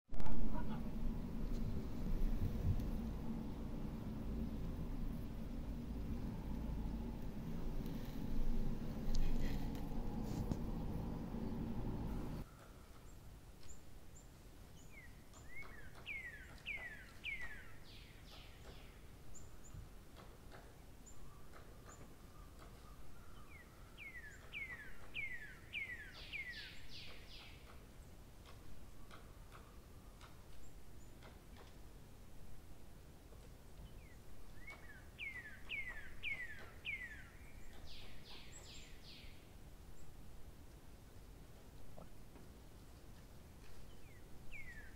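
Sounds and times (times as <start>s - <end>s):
faint clicks: 9.0s - 10.7s
birds whistling: 14.9s - 19.6s, 22.3s - 27.6s, 34.0s - 39.4s, 44.0s - 44.9s.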